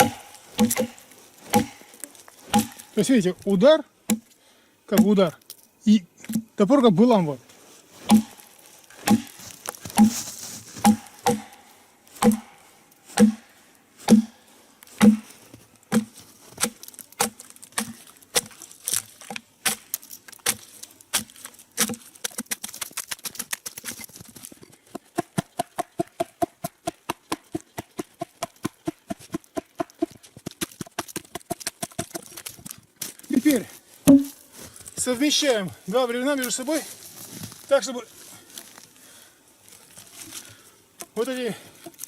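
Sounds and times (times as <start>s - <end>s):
axe chopping log: 0.0s - 3.0s, 4.1s - 4.3s, 4.9s - 5.2s, 8.0s - 11.6s, 12.2s - 14.4s, 15.0s - 23.8s, 24.9s - 32.5s, 34.1s - 34.3s.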